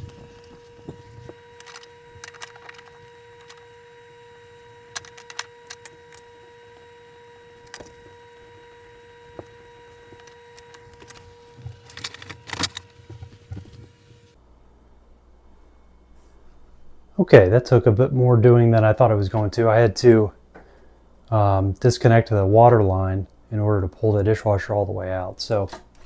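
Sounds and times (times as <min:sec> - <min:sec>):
knocks and clicks of handling: 0:00.0 - 0:06.9, 0:07.6 - 0:14.4
faint high hum: 0:00.0 - 0:26.0.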